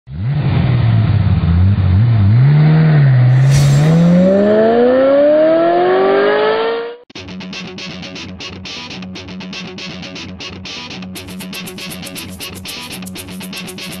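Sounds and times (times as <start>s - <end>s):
car engine revving: 0.1s - 7.0s
short hiss: 3.3s - 4.5s.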